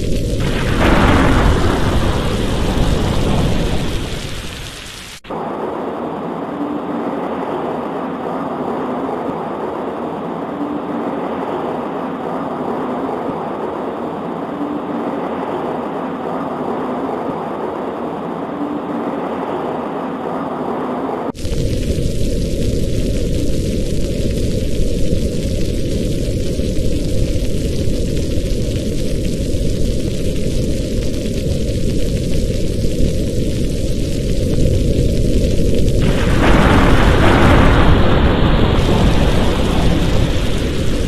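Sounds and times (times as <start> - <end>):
rain against a window: 0.0 - 6.0, 21.3 - 41.0
rain: 0.0 - 41.0
thunderclap rumbling: 0.0 - 41.0.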